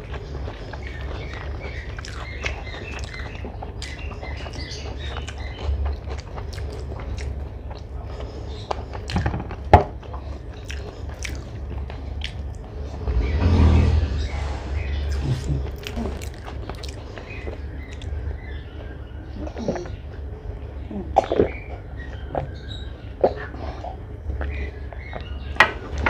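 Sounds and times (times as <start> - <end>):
chewing and biting food: 0.0 - 12.8, 15.1 - 18.3.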